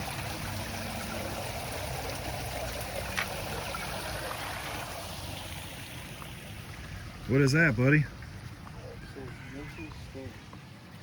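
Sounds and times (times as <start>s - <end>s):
water splashing trickle: 0.0s - 8.4s.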